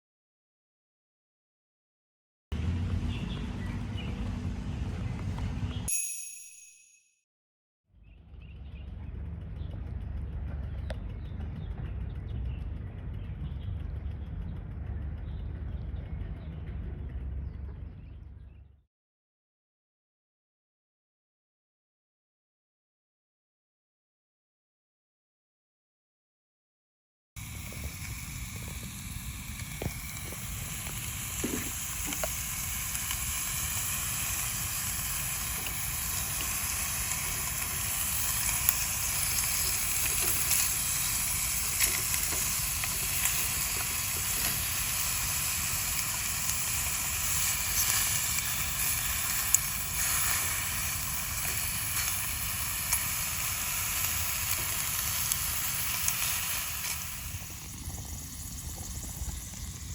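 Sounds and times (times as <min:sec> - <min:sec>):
fire crackling and popping: 0:27.4 - 0:59.9
food sizzling: 0:27.4 - 0:59.9.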